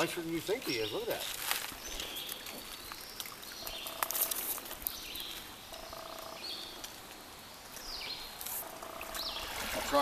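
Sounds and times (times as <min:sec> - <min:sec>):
birds calling: 0:00.0 - 0:07.0, 0:07.6 - 0:10.0
stream rushing: 0:07.4 - 0:10.0.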